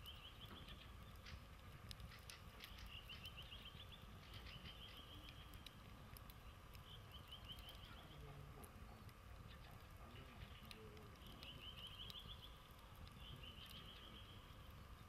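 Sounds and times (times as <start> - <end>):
small bird trilling chirps: 0.0 - 1.4, 2.1 - 5.7, 6.4 - 8.2, 11.2 - 14.6
campfire coals crackling: 0.0 - 15.0.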